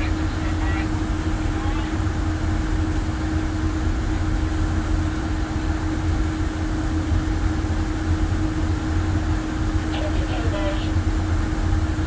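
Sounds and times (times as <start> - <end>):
ship machinery rumble: 0.0 - 2.6, 9.6 - 11.2.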